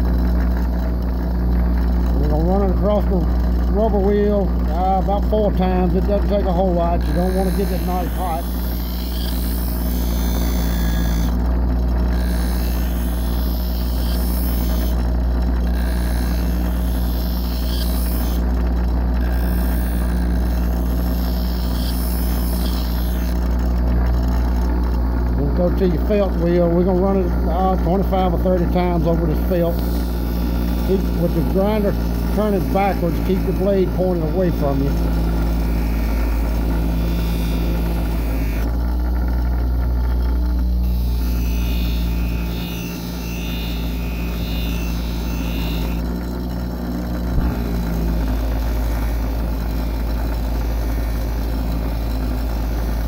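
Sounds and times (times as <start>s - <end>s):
bench grinder motor hum: 0.0s - 53.0s
blade hissing on grinding wheel: 6.3s - 11.4s, 12.0s - 18.5s, 19.2s - 23.4s, 28.8s - 38.7s, 40.8s - 46.1s, 47.4s - 53.0s.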